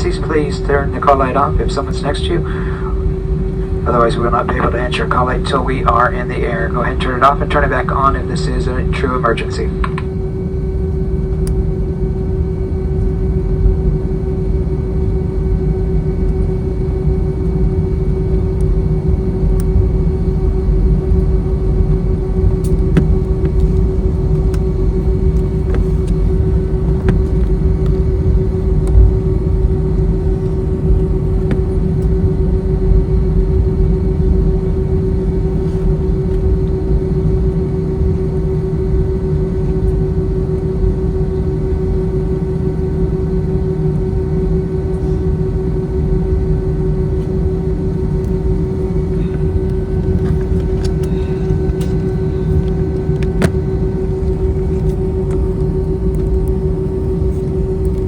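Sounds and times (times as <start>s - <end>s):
airliner rolling low rumble: 0.0s - 58.0s
constant hum: 0.0s - 58.0s
faint clicks of cabin fittings: 9.7s - 10.2s, 22.6s - 28.0s, 49.2s - 53.6s.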